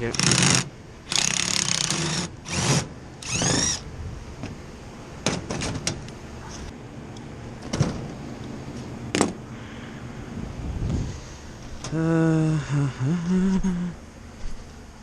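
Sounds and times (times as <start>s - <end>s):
power drill backing out screws: 0.2s - 3.8s.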